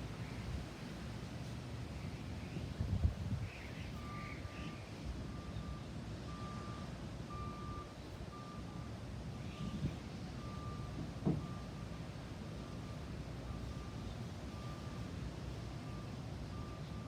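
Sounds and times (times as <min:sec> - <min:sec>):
rain: 0:00.0 - 0:17.0
thump: 0:11.2 - 0:11.5.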